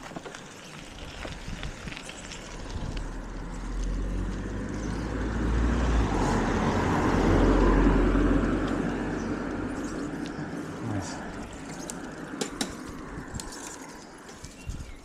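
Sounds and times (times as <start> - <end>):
wind rumbling on microphone: 0.1 - 15.0
car passing by: 2.4 - 14.0.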